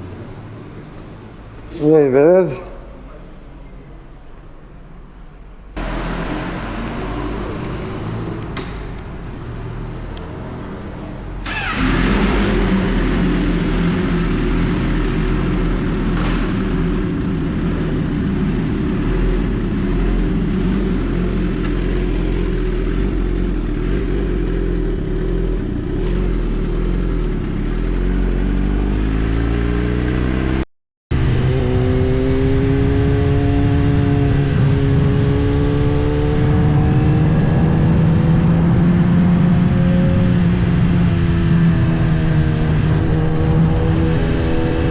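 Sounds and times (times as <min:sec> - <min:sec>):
motorcycle engine running: 0:11.4 - 0:44.9.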